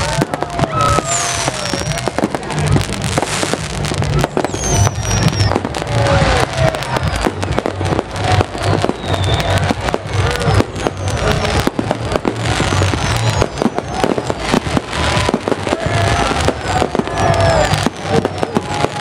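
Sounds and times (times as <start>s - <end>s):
fireworks and firecrackers bangs: 0.0s - 19.0s.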